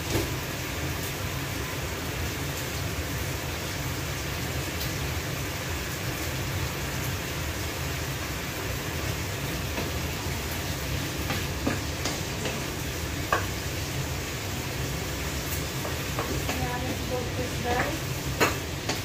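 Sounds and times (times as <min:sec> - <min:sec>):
food sizzling in a pan: 0:00.0 - 0:19.0
wooden spatula knocking pan: 0:11.2 - 0:13.6, 0:15.8 - 0:17.0, 0:17.7 - 0:19.0.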